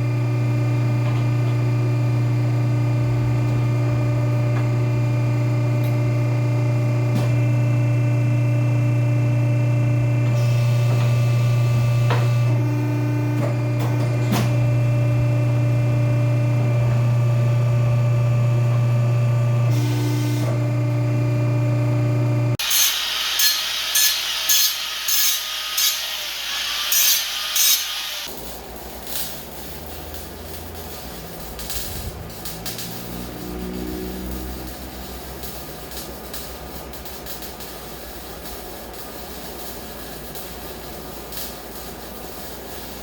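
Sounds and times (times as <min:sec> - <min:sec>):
saw strokes: 0:22.6 - 0:28.3.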